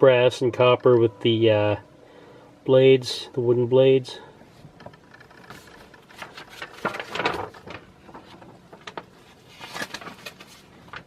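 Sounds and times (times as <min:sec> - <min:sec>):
paper rustling: 0:05.3 - 0:11.0.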